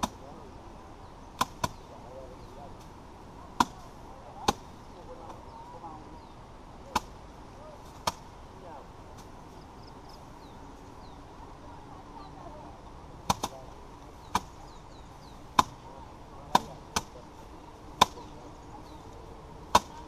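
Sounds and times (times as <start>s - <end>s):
faint bird chirps: 9.5s - 12.8s, 14.1s - 16.0s
rice bundles thwacking on hard surface: 16.5s - 17.2s, 19.7s - 20.0s.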